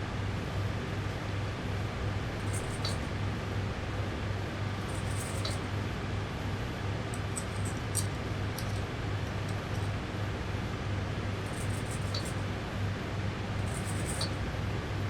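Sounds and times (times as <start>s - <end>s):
throbbing low electrical hum: 0.0s - 15.0s
faint ticks: 2.4s - 3.0s, 4.8s - 5.6s, 11.5s - 12.4s, 13.6s - 14.4s
handling rustling: 2.4s - 3.1s, 4.8s - 5.6s, 7.1s - 10.0s, 11.4s - 12.4s, 13.6s - 14.4s.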